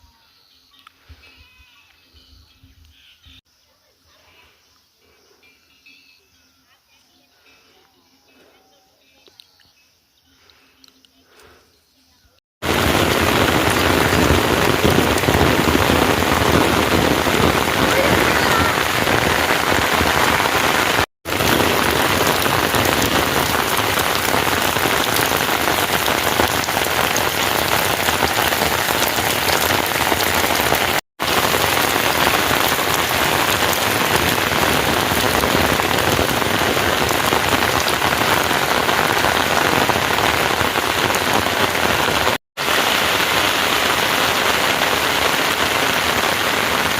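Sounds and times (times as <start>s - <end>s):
heavy rain falling: 12.6s - 46.9s.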